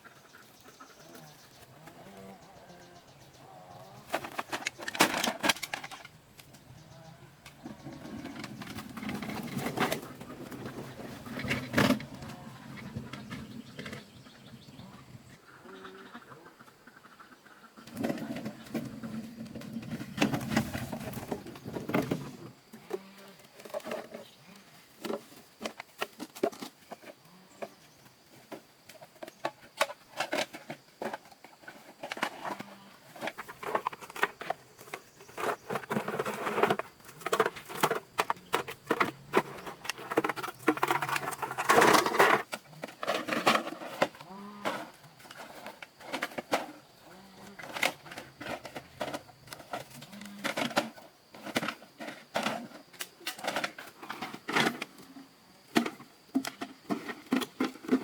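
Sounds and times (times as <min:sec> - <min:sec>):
hard objects clicking and knocking: 0:04.0 - 0:06.6, 0:28.9 - 0:46.8.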